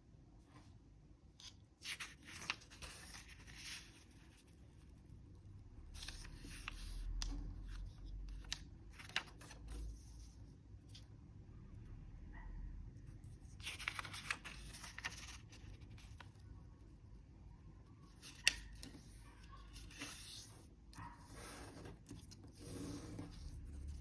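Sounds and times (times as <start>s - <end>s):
paper rustling and crinkling: 1.4s - 4.5s, 6.0s - 10.3s, 13.4s - 16.4s, 18.2s - 20.6s.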